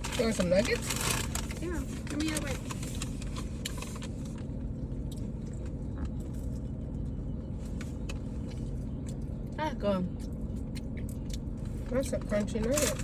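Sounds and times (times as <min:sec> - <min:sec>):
food clicks and rustles: 0:00.0 - 0:06.7
low rumble inside car: 0:00.0 - 0:13.0.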